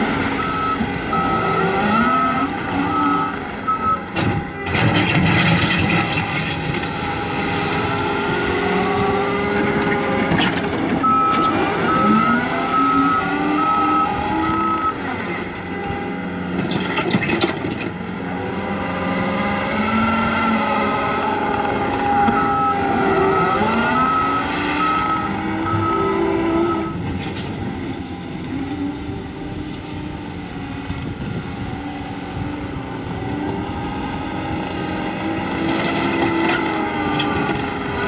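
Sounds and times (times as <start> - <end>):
diesel engine working under load: 0.0 - 38.0
backup alarm beeping: 0.3 - 4.1, 11.0 - 15.0, 22.0 - 27.0.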